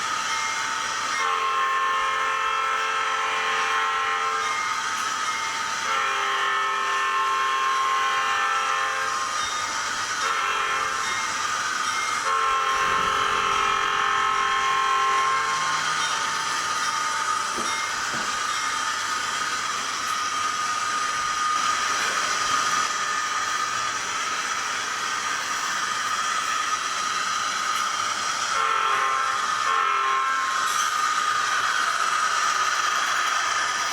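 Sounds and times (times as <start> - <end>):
model locomotive running hiss: 0.0 - 33.9
multi-tone locomotive horn: 1.2 - 4.8, 5.7 - 9.4, 10.2 - 11.2, 12.1 - 17.5, 28.4 - 31.8.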